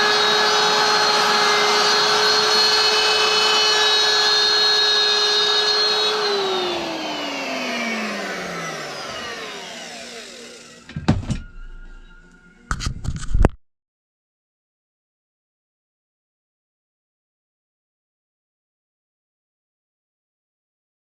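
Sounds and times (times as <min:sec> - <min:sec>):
power tool motor whining: 0:00.0 - 0:11.6.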